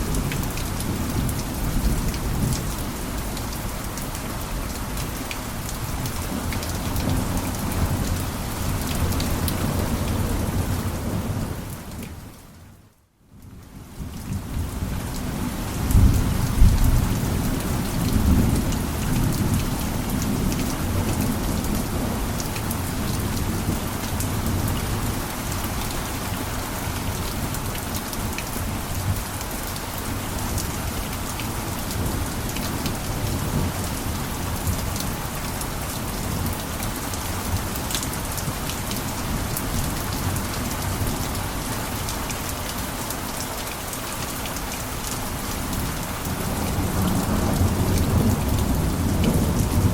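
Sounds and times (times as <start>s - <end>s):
heavy rain falling: 0.0s - 12.8s, 13.4s - 49.9s.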